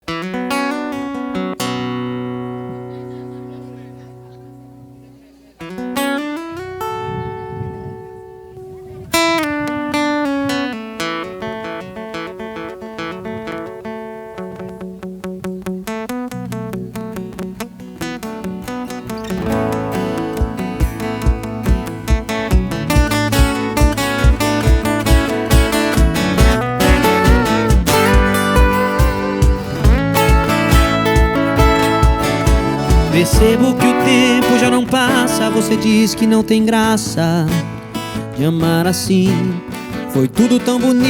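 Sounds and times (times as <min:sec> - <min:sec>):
acoustic guitar: 0:00.0 - 0:41.0
drum beat: 0:19.4 - 0:34.8.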